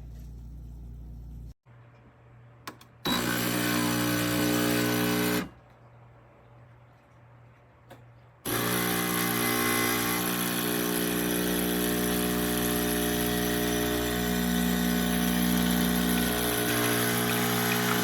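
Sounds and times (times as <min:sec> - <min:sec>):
espresso machine pump humming: 0:08.5 - 0:18.0.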